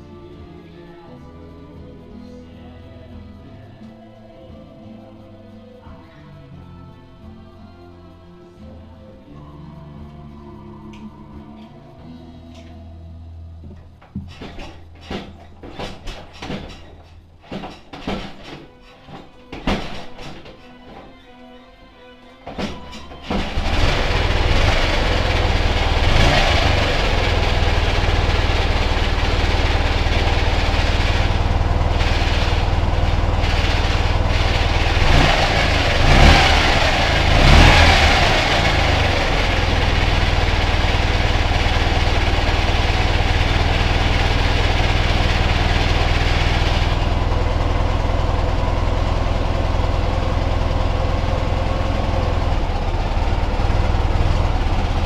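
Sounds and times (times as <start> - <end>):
motorcycle engine running: 23.3 - 55.0.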